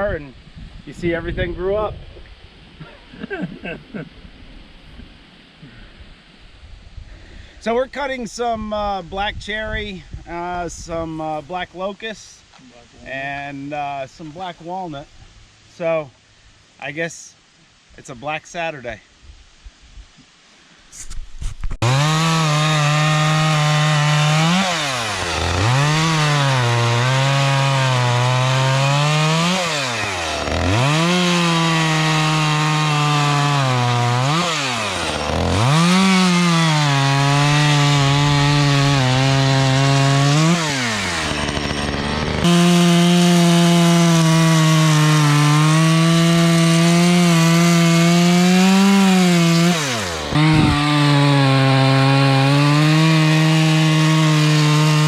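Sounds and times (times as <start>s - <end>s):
chainsaw cutting wood: 21.7s - 55.0s.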